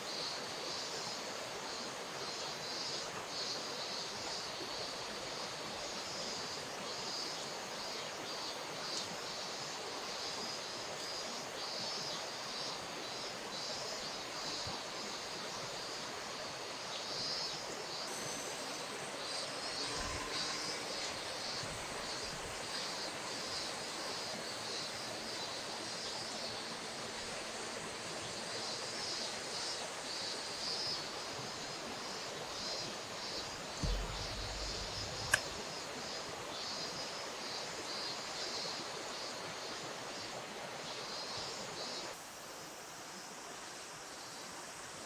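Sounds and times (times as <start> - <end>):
river water flowing: 0.0 - 45.0
high rapid pulsing chirring: 18.1 - 25.1, 33.8 - 35.6
low thump: 33.8 - 35.6
sharp click: 33.8 - 35.6.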